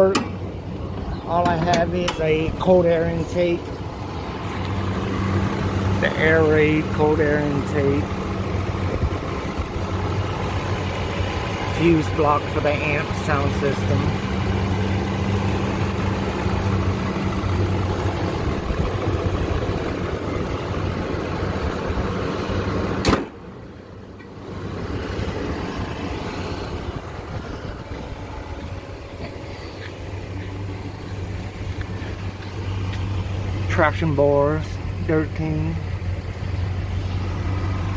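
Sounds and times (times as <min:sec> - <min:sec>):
truck engine idling: 0:00.0 - 0:37.9
sharp click: 0:23.0 - 0:23.4.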